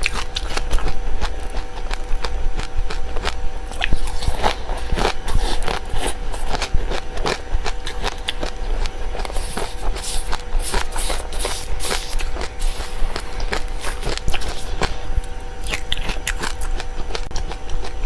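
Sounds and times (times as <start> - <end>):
chewing dry seeds: 0.0 - 18.0
faint steady hum: 0.0 - 18.0.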